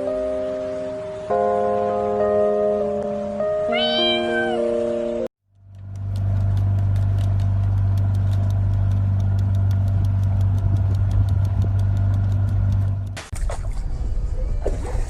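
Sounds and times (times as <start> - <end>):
fast regular ticking: 5.5 - 13.2
low motor hum: 5.5 - 15.0.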